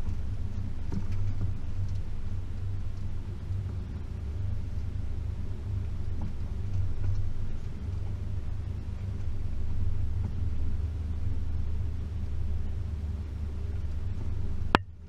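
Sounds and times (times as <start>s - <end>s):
car engine running: 0.0s - 15.0s
faint engine knocks: 0.0s - 15.0s.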